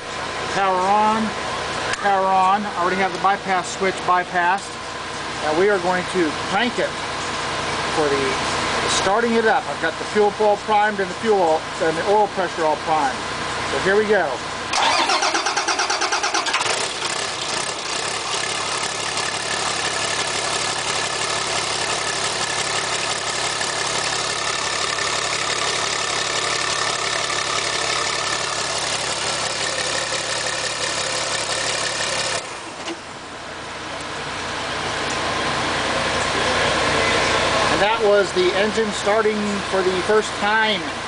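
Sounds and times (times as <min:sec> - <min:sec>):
bus engine running: 0:14.4 - 0:41.0
starter motor cranking: 0:14.7 - 0:32.5.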